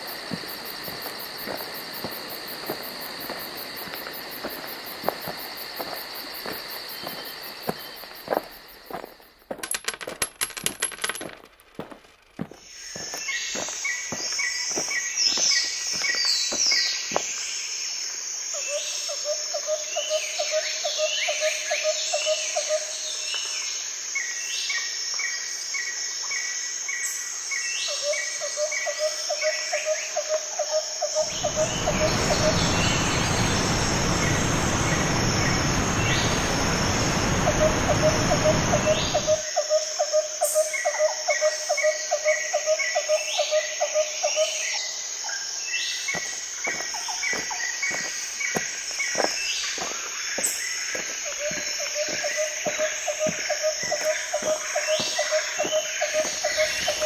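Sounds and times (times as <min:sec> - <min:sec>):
high insect drone: 0:00.0 - 0:09.7, 0:11.8 - 0:57.0
birds chirping: 0:00.0 - 0:17.4, 0:31.2 - 0:39.4, 0:45.9 - 0:57.0
loud even rushing noise: 0:31.3 - 0:39.2.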